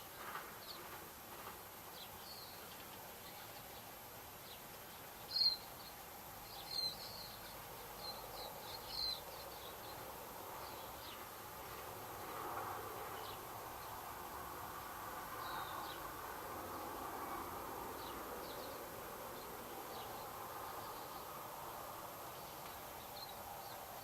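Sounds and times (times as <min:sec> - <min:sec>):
small birds chirping: 0:02.0 - 0:11.2.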